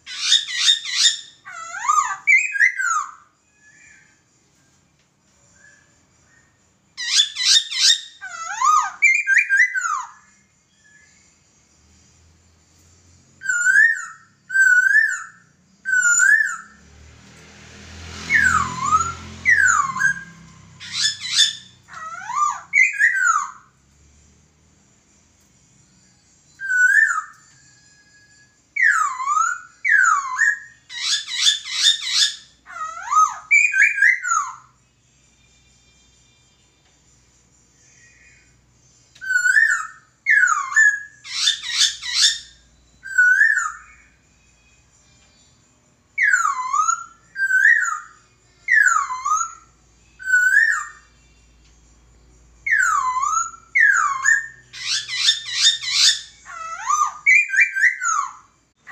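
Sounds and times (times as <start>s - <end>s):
bird whistling swooping notes: 17.9s - 23.7s.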